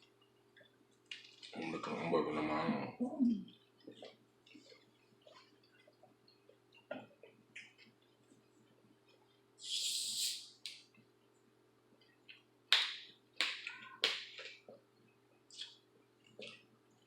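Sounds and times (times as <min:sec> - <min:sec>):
chewing: 0:03.5 - 0:09.4, 0:14.4 - 0:17.0
hissy slurp or sniff: 0:09.6 - 0:10.5.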